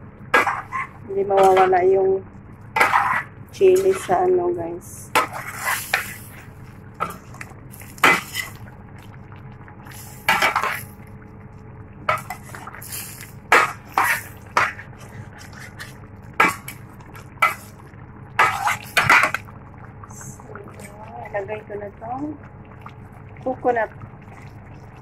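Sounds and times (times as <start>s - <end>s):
steady low hum: 0.0s - 25.0s
utensil scraping metal pot: 2.8s - 4.3s, 5.1s - 6.4s, 12.1s - 16.8s, 18.4s - 19.4s.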